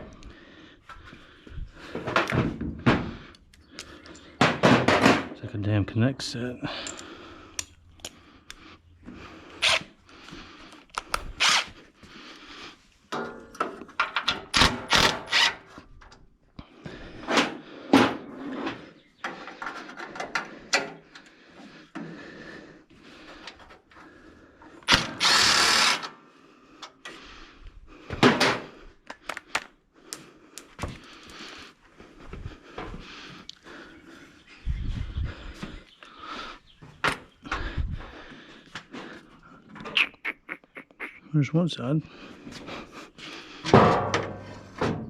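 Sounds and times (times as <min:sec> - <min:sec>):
battery power tool running: 0:24.9 - 0:26.0.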